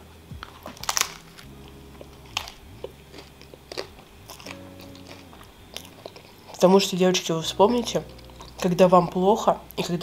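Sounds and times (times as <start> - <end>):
crunchy clicks: 0.4 - 6.6
person chewing: 0.4 - 6.7, 7.8 - 8.8.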